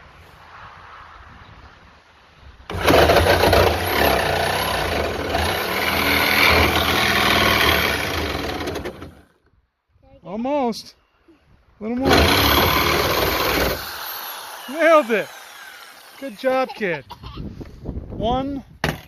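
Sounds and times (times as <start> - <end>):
power tool cutting sheet metal: 2.7 - 9.2, 12.0 - 16.7.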